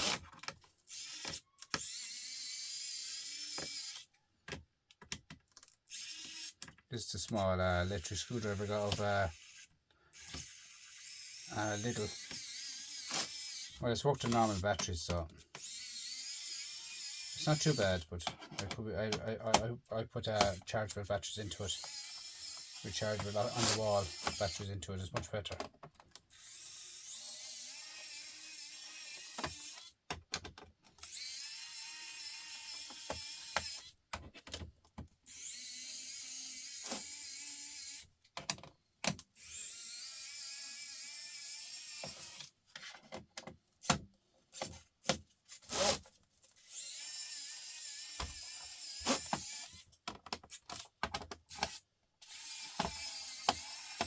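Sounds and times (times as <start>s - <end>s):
electric screwdriver running: 0.9s - 4.1s, 5.9s - 6.6s, 8.3s - 14.6s, 21.7s - 24.6s, 26.3s - 29.9s, 31.0s - 33.9s, 46.6s - 49.8s, 51.5s - 54.0s
sharp clicks and knocks: 29.4s - 31.0s, 38.2s - 39.3s, 49.3s - 51.8s.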